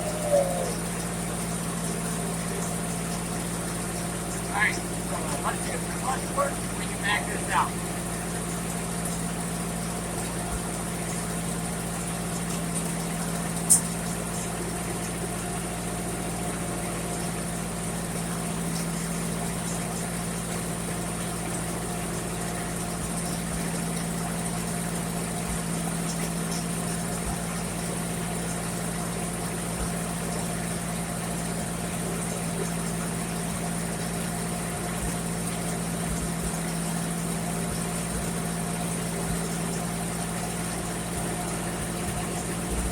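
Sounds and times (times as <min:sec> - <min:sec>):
tractor engine idling: 0:03.8 - 0:11.9
sharp click: 0:13.7 - 0:13.9.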